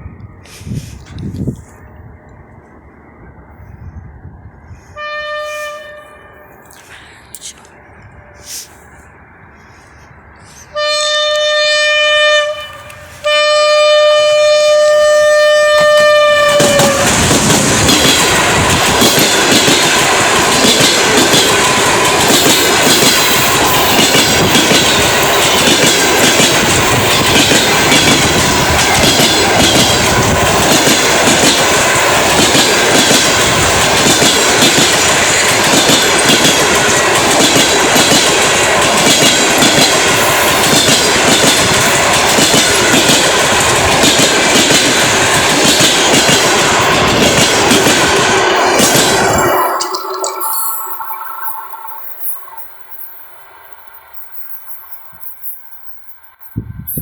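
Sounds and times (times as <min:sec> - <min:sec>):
train horn blasts: 0:04.8 - 0:06.6, 0:10.6 - 0:17.2
wheels clattering over rail joints: 0:15.6 - 0:56.4.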